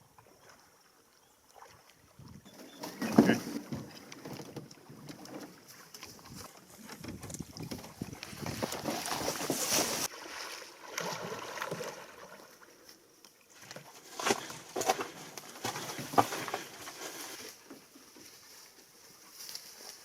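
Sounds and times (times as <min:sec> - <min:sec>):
paddle swishing water: 0:00.0 - 0:20.0
sharp knocks on canoe: 0:02.8 - 0:05.2.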